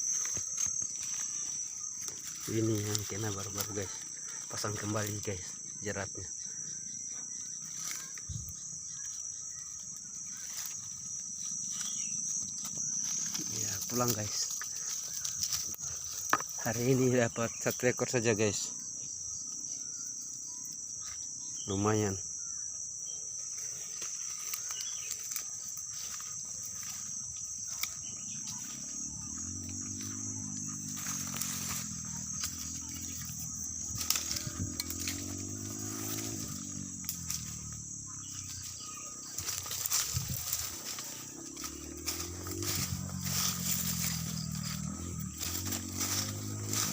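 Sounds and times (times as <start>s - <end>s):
crickets chirping: 0.0s - 46.9s
low droning hum: 27.9s - 46.9s.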